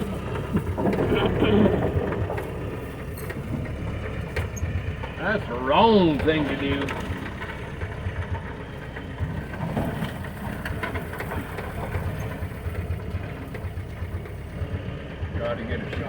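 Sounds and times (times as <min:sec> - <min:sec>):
engine rumbling at low speed: 0:00.0 - 0:16.0.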